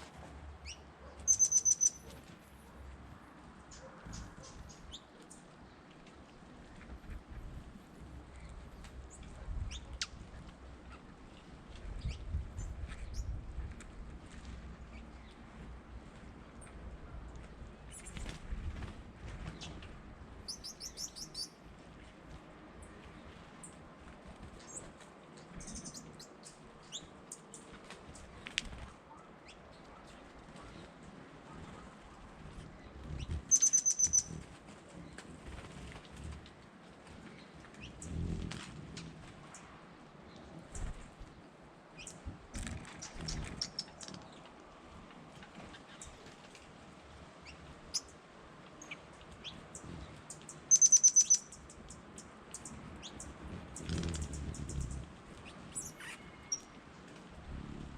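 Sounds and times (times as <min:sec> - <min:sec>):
birds chirping: 0:00.6 - 0:02.3, 0:03.6 - 0:07.6, 0:20.4 - 0:21.6, 0:24.6 - 0:35.5, 0:48.8 - 0:56.8.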